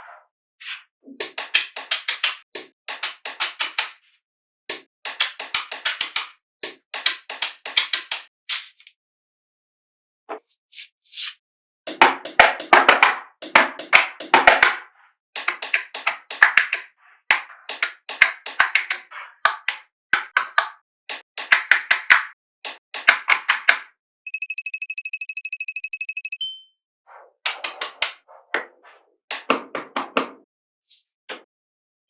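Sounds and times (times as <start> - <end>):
magnetic balls clicking: 1.2 - 3.9, 4.7 - 8.3, 15.4 - 23.8
short high beep: 24.3 - 26.8.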